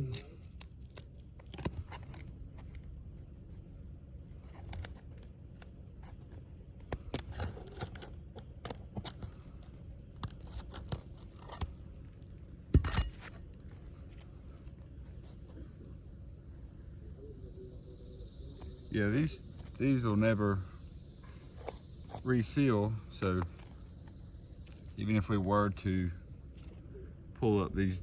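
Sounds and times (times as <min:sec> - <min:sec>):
shingles cracking and tearing: 0:00.0 - 0:03.6, 0:04.2 - 0:12.3.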